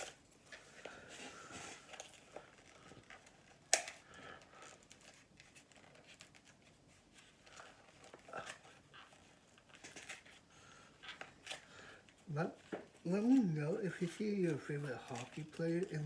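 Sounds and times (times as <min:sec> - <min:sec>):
card pack wrapper crinkling: 0:12.9 - 0:16.0.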